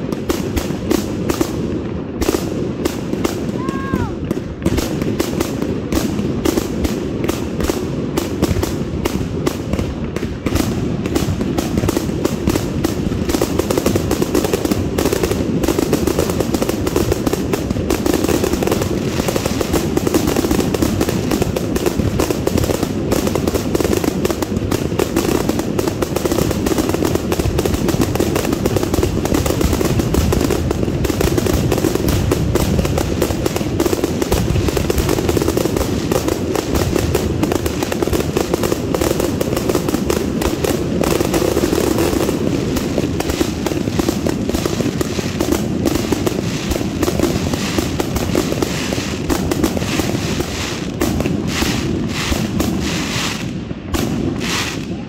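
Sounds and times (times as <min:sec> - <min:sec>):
firework aerial bursts: 0:00.0 - 0:55.0.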